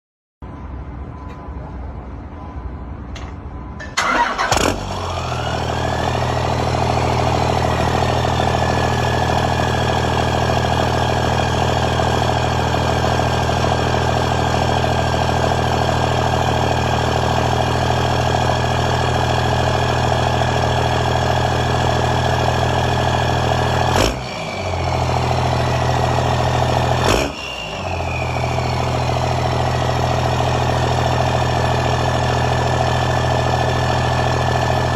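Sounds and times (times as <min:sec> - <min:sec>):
engine cranking and starting: 0:03.8 - 0:10.9
engine idling: 0:04.0 - 0:34.9.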